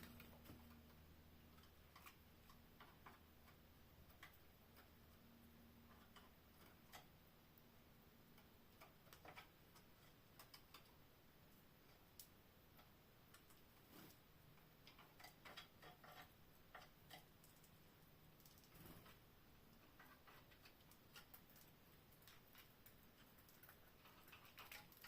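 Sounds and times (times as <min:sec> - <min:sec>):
faint low hum: 0:00.0 - 0:25.0
faint small clicks and taps: 0:08.3 - 0:11.0, 0:11.8 - 0:25.0.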